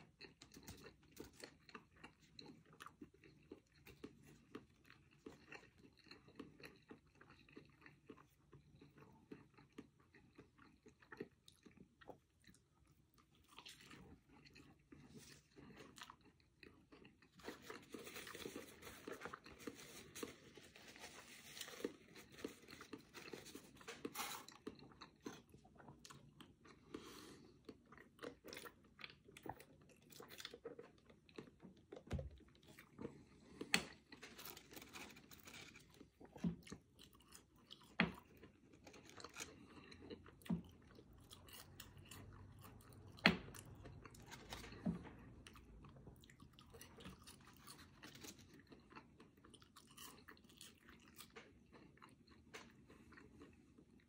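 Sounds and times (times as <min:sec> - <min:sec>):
wet crunchy chewing: 0:00.0 - 0:54.0.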